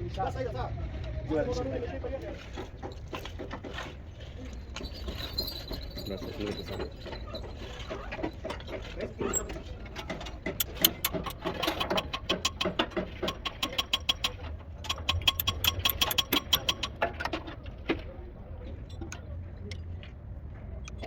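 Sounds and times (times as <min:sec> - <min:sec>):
sharp mechanical tool clicks: 0:10.6 - 0:17.0.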